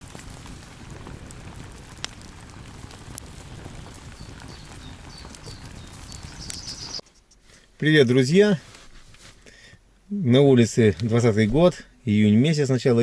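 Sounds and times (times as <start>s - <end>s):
steady rain-like hiss: 0.0s - 13.0s
high chirps: 4.5s - 7.1s.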